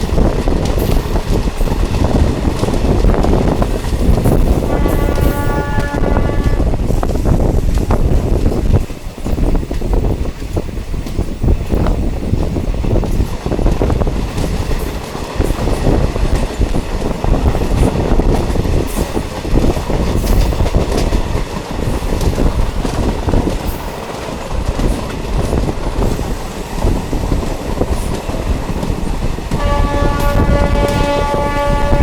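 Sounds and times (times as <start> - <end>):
train rumbling along track: 0.0 - 32.0
wheels clacking and rattling: 6.8 - 31.4.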